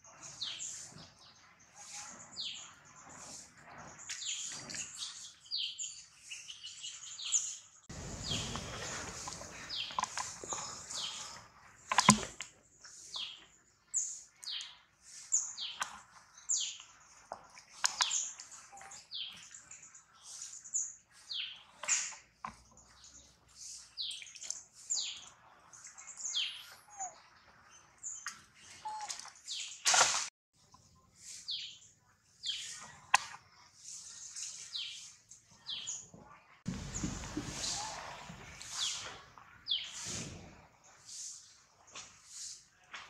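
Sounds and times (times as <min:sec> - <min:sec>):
birds chirping: 0:06.6 - 0:12.3, 0:36.7 - 0:40.2.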